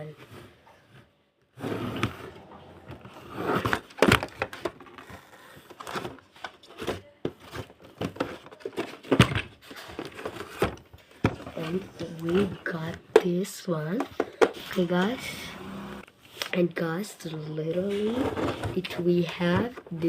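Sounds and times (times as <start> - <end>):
plastic and cardboard rustling: 0.0 - 15.5, 16.2 - 20.0
packaging clicks and knocks: 2.9 - 13.3.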